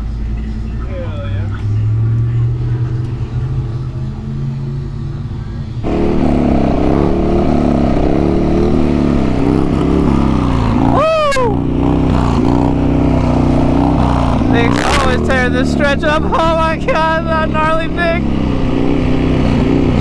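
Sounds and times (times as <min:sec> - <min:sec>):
motorcycle engine revving: 0:00.0 - 0:20.0
rider shouting: 0:09.0 - 0:18.5.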